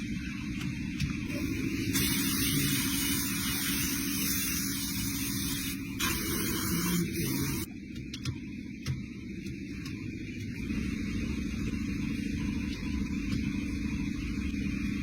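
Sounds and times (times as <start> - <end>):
factory machinery hum: 0.0 - 15.0
loud hiss: 1.3 - 7.7.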